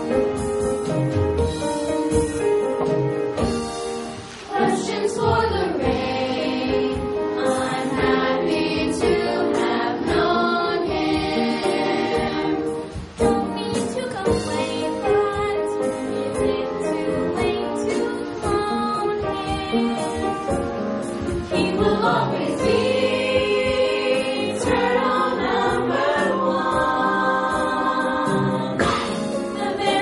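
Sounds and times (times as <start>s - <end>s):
children singing together: 4.5s - 12.9s, 21.5s - 30.0s.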